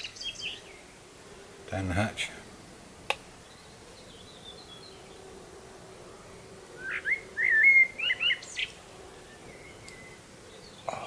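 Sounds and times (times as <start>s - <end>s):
songbird warbling: 0.0s - 2.0s, 3.0s - 11.0s.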